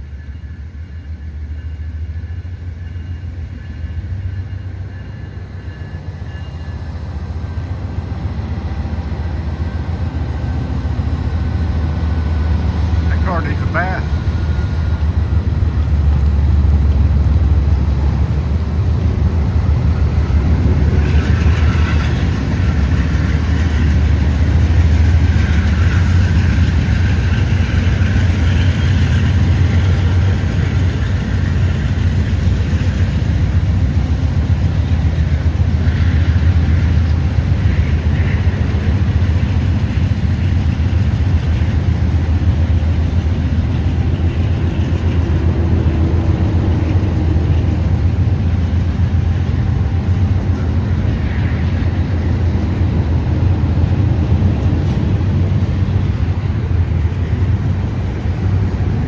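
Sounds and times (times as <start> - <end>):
freight train rumbling: 0.0 - 59.0.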